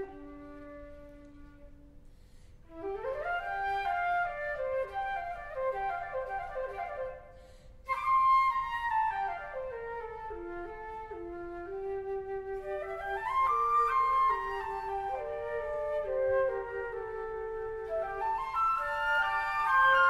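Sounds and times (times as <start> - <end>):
flute ensemble playing: 0.0 - 1.9, 2.7 - 20.0.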